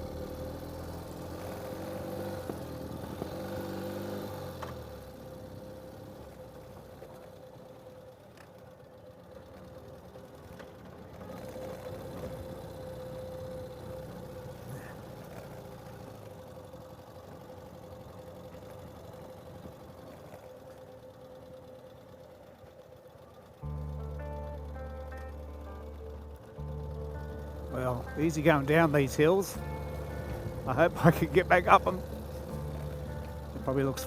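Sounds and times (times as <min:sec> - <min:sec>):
motorcycle engine running: 0:00.0 - 0:34.0
music: 0:23.6 - 0:34.0.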